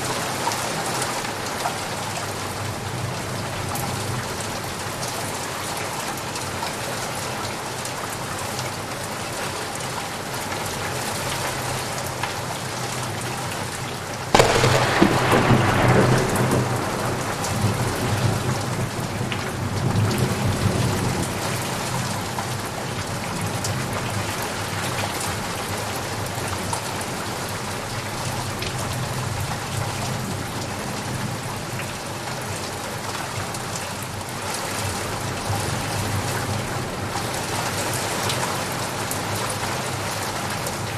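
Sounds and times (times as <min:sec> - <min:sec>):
steady rain falling: 0:00.0 - 0:40.9
thunderclap and rumbling: 0:14.3 - 0:21.4.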